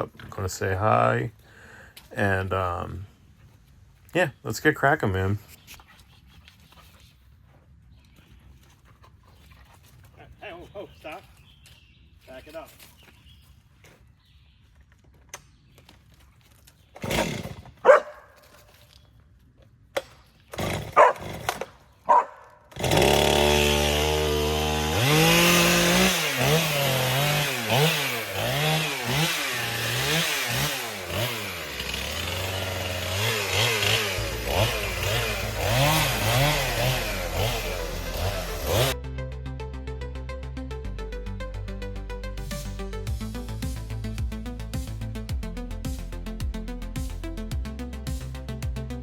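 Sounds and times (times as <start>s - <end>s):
chainsaw revving: 17.0s - 18.1s, 20.5s - 39.0s.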